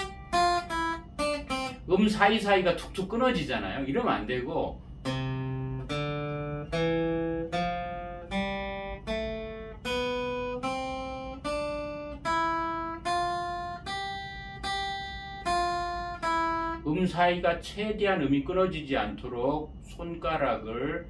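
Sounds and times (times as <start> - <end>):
acoustic guitar picked notes: 0.0 - 3.0, 5.0 - 17.2.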